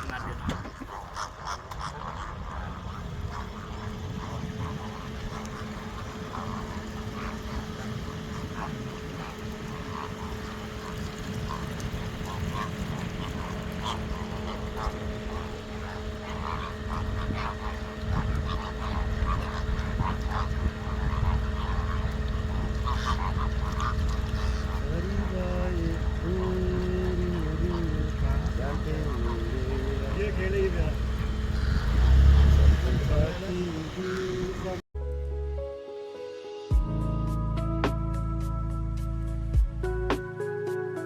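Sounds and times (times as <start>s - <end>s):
short bird calls: 0.0s - 32.9s
low mechanical hum: 0.0s - 34.8s.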